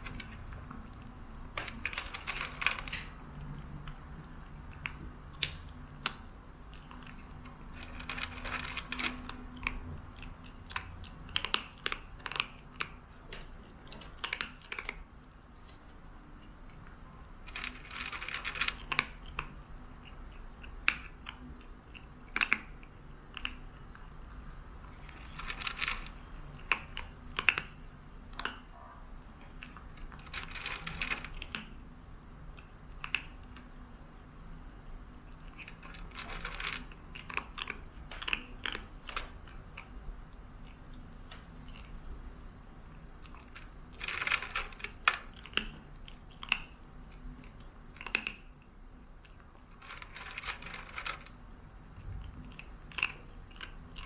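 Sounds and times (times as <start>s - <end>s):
small clicks and rattles: 0.0s - 15.1s, 16.7s - 31.8s, 35.2s - 40.0s, 40.6s - 54.0s
low steady hum: 0.0s - 54.0s.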